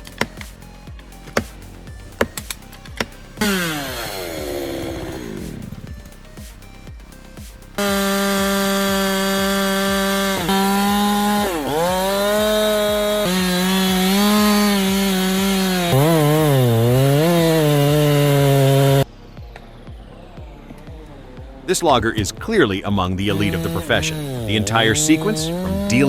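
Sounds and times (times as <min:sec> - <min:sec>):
chainsaw cutting into tree: 0:00.0 - 0:00.6, 0:01.2 - 0:06.5, 0:07.8 - 0:19.1, 0:23.3 - 0:26.0.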